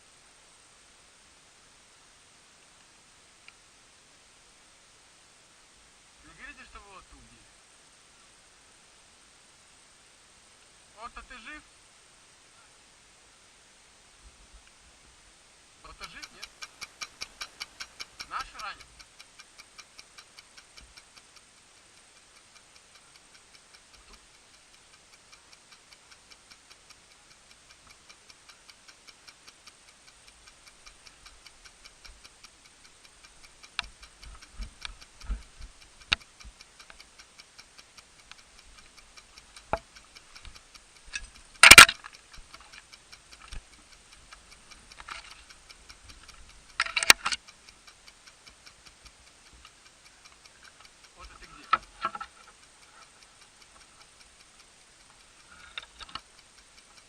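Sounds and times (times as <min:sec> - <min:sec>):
clock-like ticking: 0:06.0 - 0:07.4, 0:10.6 - 0:11.7, 0:15.7 - 0:57.0
sharp clicks: 0:15.8 - 0:57.0
cluster of cracks: 0:38.0 - 0:47.5.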